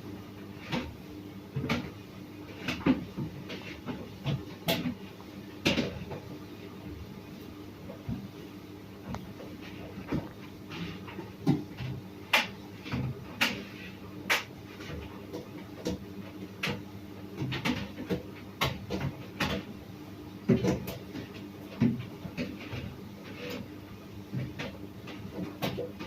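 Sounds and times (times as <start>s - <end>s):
clicks and knocks in dryer: 14.3s - 19.7s, 20.4s - 23.5s, 24.4s - 26.0s.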